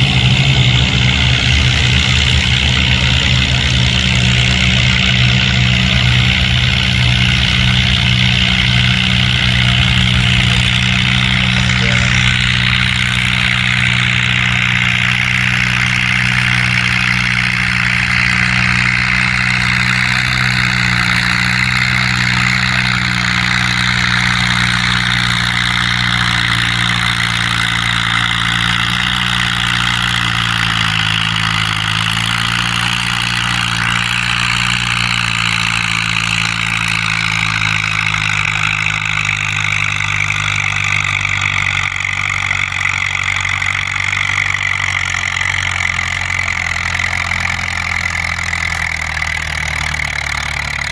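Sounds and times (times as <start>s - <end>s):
tractor engine running: 0.0s - 50.9s
high whine falling in pitch: 9.3s - 15.3s.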